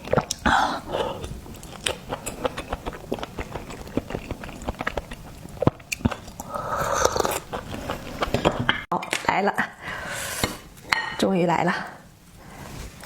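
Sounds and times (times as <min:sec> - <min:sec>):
person chewing with wet clicks: 0:00.0 - 0:08.6.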